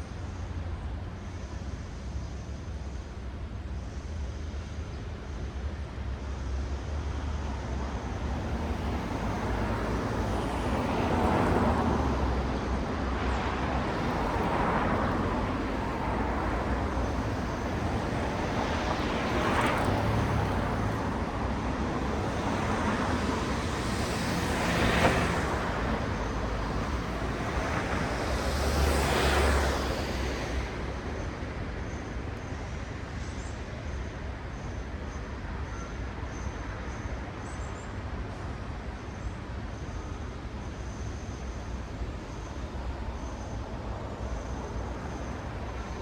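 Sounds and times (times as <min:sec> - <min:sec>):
traffic rumble: 0:07.2 - 0:33.2, 0:41.9 - 0:46.0
cars passing: 0:07.3 - 0:32.3.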